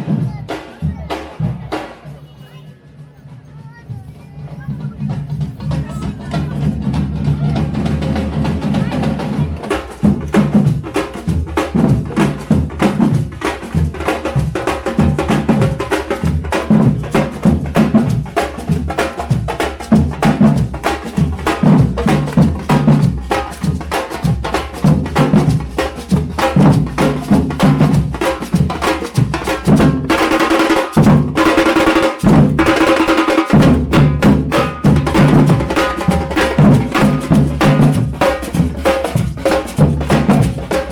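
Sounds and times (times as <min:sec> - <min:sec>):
parade drums beating: 0:00.0 - 0:40.9.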